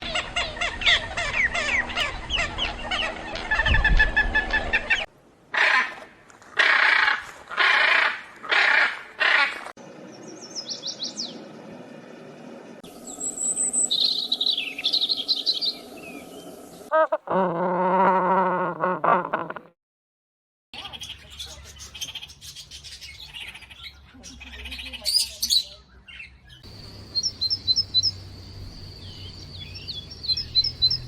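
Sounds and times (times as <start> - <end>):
busy bird song: 0.0 - 5.1, 9.8 - 17.0, 20.8 - 31.0
chorus of birds chirping: 0.0 - 5.1, 9.9 - 17.2, 20.8 - 31.0
harsh bird squawks: 6.6 - 9.7.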